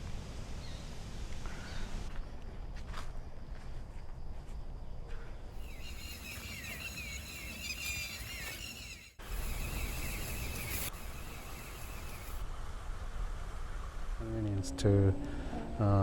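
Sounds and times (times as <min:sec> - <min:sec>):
birds chirping: 0:05.6 - 0:12.4.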